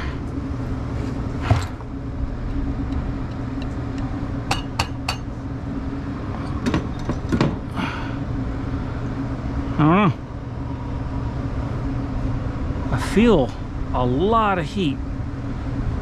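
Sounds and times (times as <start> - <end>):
condensing unit humming: 0.0 - 16.0.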